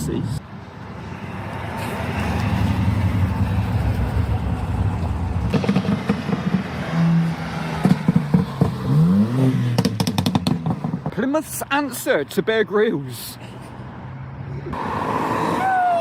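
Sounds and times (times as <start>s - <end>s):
car engines rumbling: 0.0s - 16.0s
engine revving up: 1.7s - 11.1s.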